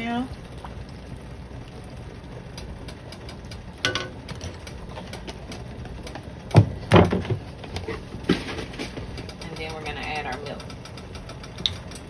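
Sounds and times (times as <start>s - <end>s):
faint crackle of ticks: 0.2s - 3.8s, 9.1s - 12.0s
knocks and clunks on a pan: 3.8s - 9.4s.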